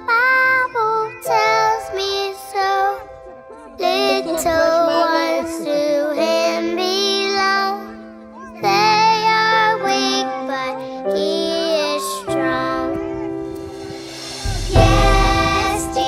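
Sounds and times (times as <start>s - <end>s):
child singing: 0.0s - 13.7s, 14.4s - 16.0s
instrumental chords: 12.4s - 16.0s.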